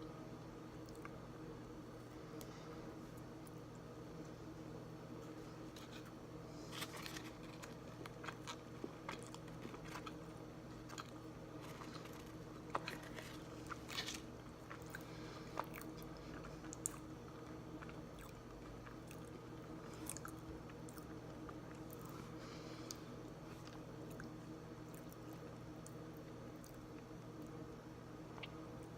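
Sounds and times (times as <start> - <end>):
steady low hum: 0.0 - 28.9
chewing crunchy bar: 6.6 - 22.3.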